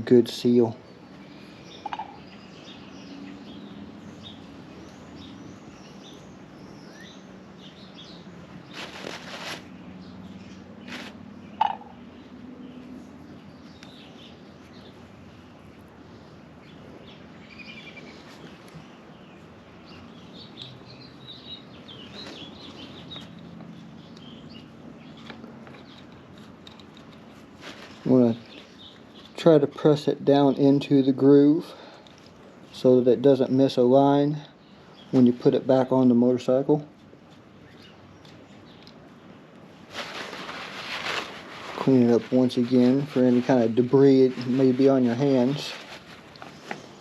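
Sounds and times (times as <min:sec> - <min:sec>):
small birds chirping: 0:00.0 - 0:47.0
rustling: 0:08.6 - 0:09.8, 0:10.8 - 0:11.2, 0:25.1 - 0:29.4, 0:39.7 - 0:47.0.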